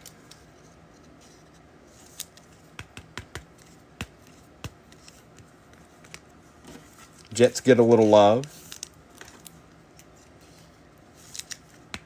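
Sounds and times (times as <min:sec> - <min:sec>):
faint room hum: 0:00.0 - 0:12.0
trading cards clicking and tapping: 0:02.1 - 0:06.3, 0:11.2 - 0:12.0.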